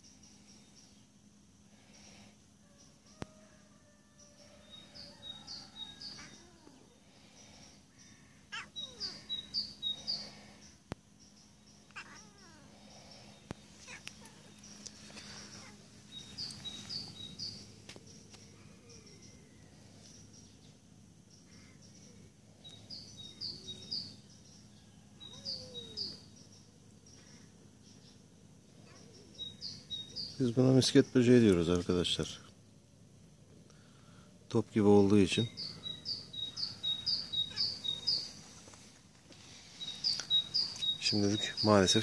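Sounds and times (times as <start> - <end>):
bird chirping: 4.2 - 32.8, 34.5 - 38.8, 39.4 - 42.0
bird gliding calls: 35.5 - 38.6.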